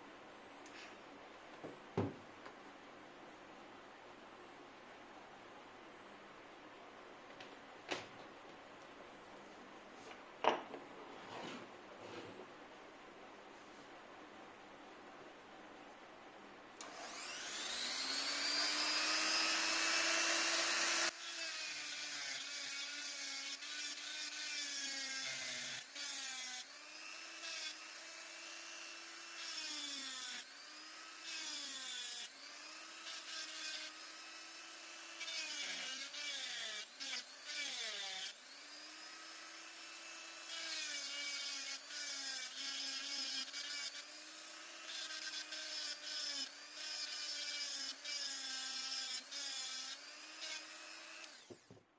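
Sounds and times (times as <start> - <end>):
electric die grinder whining: 16.8 - 24.7, 25.7 - 51.6.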